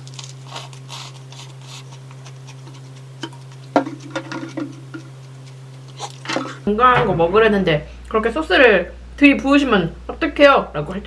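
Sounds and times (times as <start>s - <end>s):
paper wrapper crackling: 0.0s - 1.5s
person chewing food: 0.0s - 6.6s
steady low hum: 0.0s - 11.0s.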